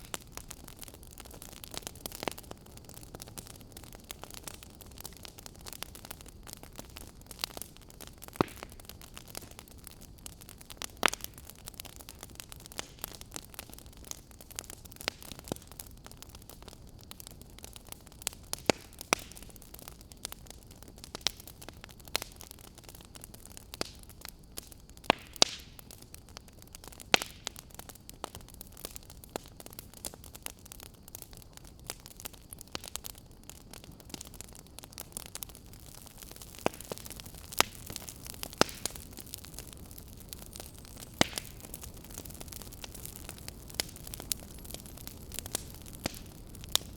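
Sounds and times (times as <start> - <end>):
fire low hiss and rumble: 0.0 - 46.9
wood fire crackling and popping: 0.0 - 46.9.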